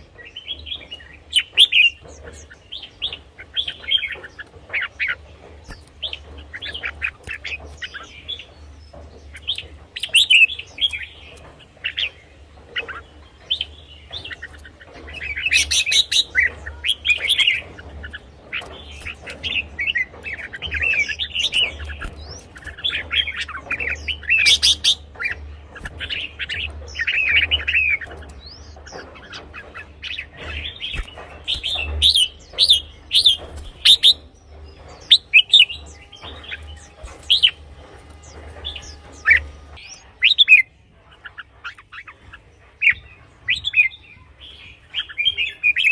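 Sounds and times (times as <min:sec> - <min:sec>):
steady low hum: 0:00.0 - 0:43.5
birds singing whistled phrases: 0:00.1 - 0:45.9.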